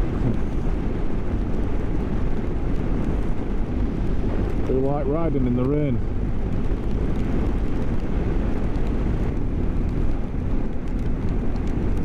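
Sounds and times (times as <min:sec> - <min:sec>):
road rumble: 0:00.0 - 0:12.0
wind noise: 0:00.0 - 0:12.0.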